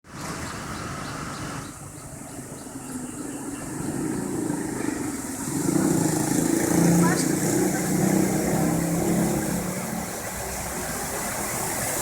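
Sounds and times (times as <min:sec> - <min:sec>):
vehicle engines running: 0:00.1 - 0:12.0.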